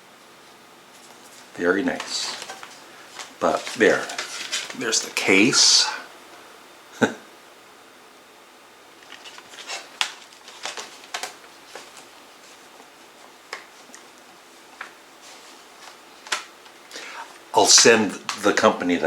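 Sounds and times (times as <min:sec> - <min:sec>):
plastic cases clicking and rustling: 0:09.0 - 0:12.1.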